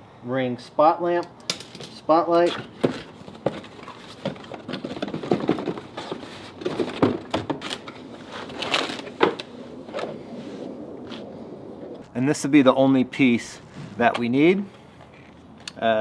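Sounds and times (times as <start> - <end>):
cardboard packaging rustling: 2.4 - 9.5.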